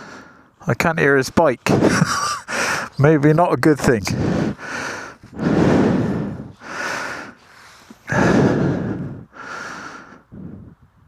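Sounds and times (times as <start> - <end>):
person breathing hard: 0.0 - 0.6, 1.8 - 3.0, 4.1 - 10.8.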